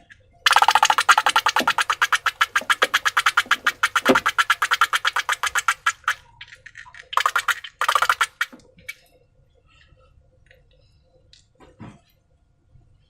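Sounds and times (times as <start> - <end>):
slime clicking and crackling: 0.5 - 6.2, 7.0 - 8.6.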